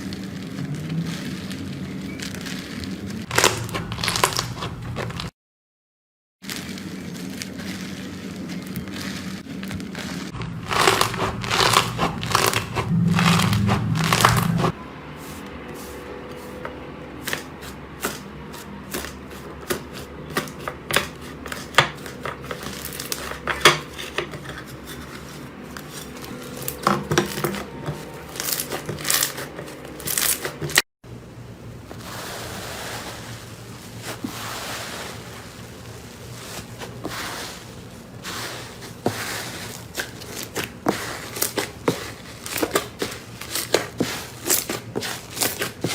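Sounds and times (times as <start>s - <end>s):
slime crackling and popping: 0.0s - 5.3s, 6.4s - 14.8s, 25.9s - 30.8s.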